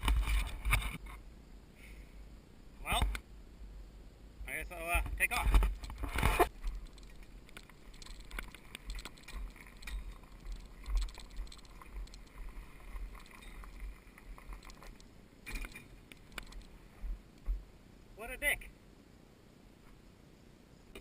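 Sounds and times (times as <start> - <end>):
light clicks and rattles: 5.0 - 17.6.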